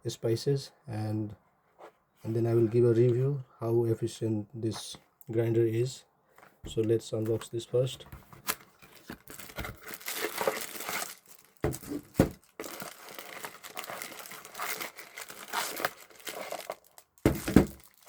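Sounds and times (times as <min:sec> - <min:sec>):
packaging rustling and crinkling: 0:08.1 - 0:18.0.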